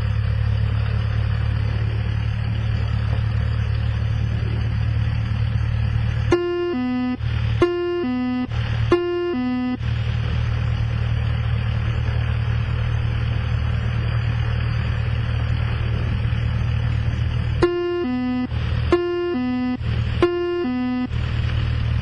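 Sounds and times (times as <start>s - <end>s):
propeller plane engine droning: 0.0s - 22.0s
two-note electronic tone: 6.3s - 9.8s, 17.6s - 21.1s.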